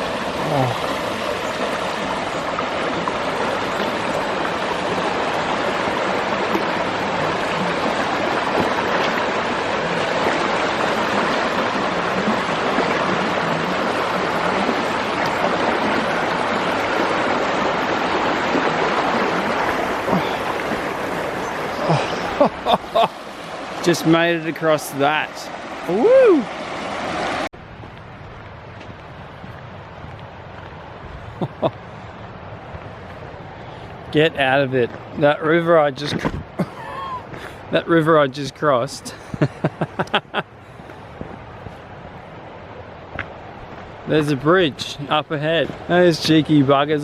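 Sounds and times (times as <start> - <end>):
stream water rushing: 0.0 - 47.0.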